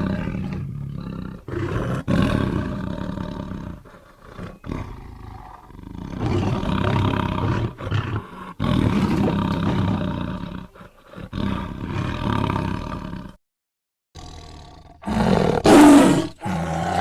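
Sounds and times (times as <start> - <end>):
tiger roaring: 0.0 - 13.4, 14.2 - 17.0.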